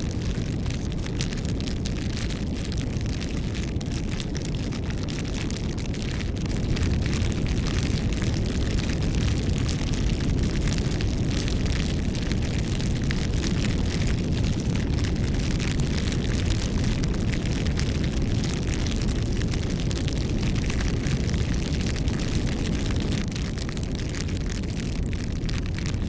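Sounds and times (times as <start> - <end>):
bonfire flames rushing: 0.0 - 26.0
burning wood crackling: 0.0 - 26.0.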